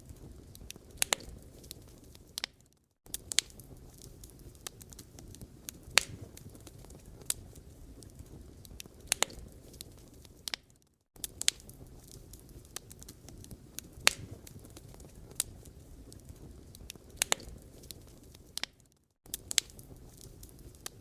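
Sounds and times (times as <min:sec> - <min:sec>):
low rumble of flames: 0:00.0 - 0:21.0
wood fire crackling: 0:00.0 - 0:21.0.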